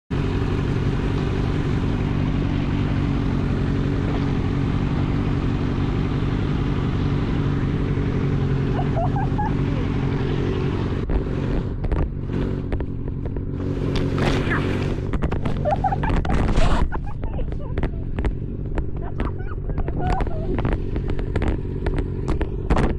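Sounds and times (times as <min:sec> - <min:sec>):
motorcycle engine running: 0:00.1 - 0:22.9
wind and road noise: 0:00.1 - 0:22.9.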